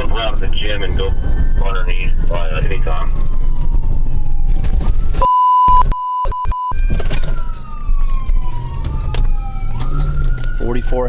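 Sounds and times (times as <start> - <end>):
police siren wailing: 0.0 - 5.2, 6.7 - 11.0
loud electronic beep tone: 5.2 - 6.8.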